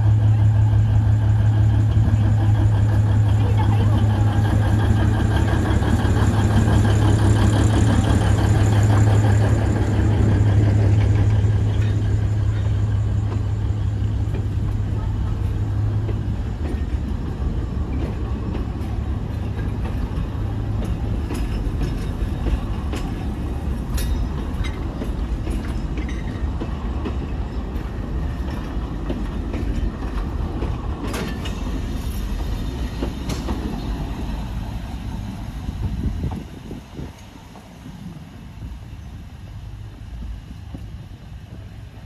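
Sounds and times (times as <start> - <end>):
train rumbling: 0.0 - 42.0
wheels clicking over rail joints: 1.9 - 34.7.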